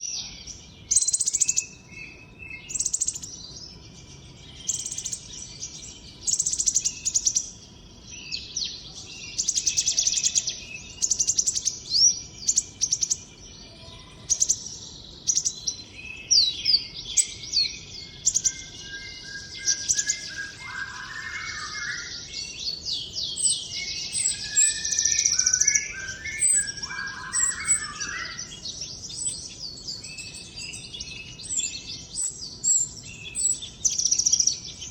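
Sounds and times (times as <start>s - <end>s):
songbird chirping: 0.0s - 34.9s
bird sweeping whistles: 24.1s - 28.5s.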